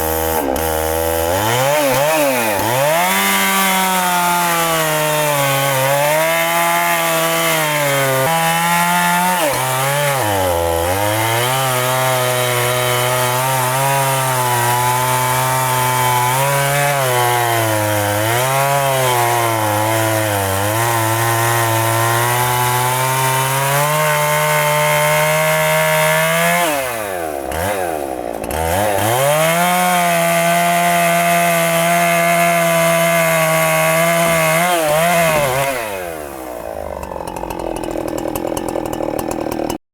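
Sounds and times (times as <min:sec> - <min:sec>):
chainsaw cutting wood: 0:00.0 - 0:39.8.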